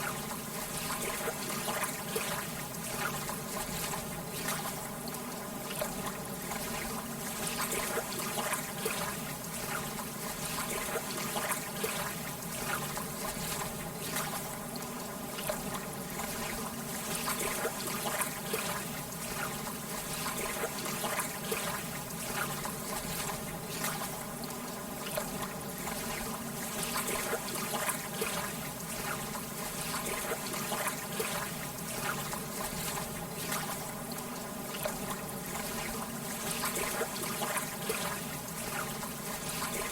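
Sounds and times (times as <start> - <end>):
water lapping at shore: 0.0 - 39.9.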